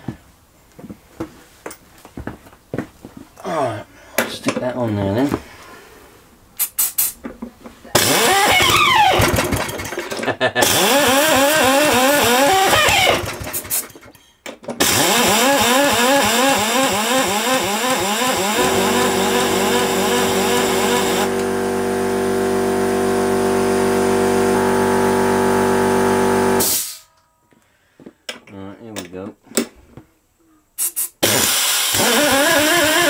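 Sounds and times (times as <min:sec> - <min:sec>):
lawnmower engine surging: 0:08.0 - 0:14.0, 0:14.8 - 0:26.7, 0:31.3 - 0:33.0.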